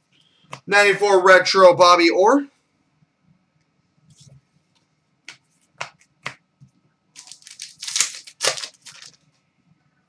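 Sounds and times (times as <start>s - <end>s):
cards rustling and sliding: 7.2s - 9.2s.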